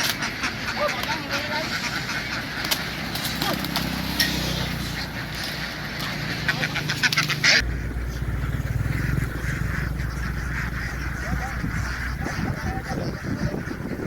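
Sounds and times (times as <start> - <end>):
ducks quacking: 0.0 - 14.0
steady low hum: 7.6 - 13.3.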